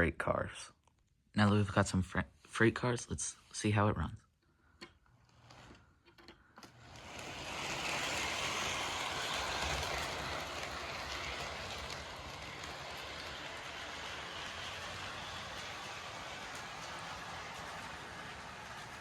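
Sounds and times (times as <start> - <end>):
model train motor and wheels running: 5.2 - 19.0.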